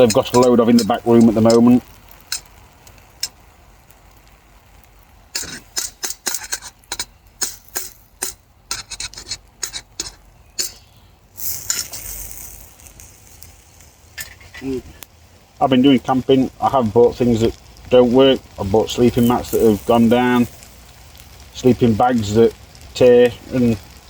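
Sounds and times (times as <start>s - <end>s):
metal utensils clinking on pan: 0.0s - 2.5s, 5.4s - 10.8s
short hiss: 5.3s - 15.5s.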